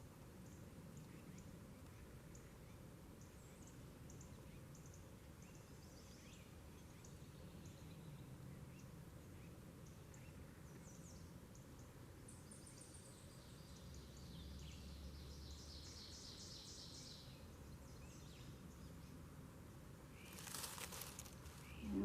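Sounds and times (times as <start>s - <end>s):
faint bird chirps: 20.1s - 22.0s.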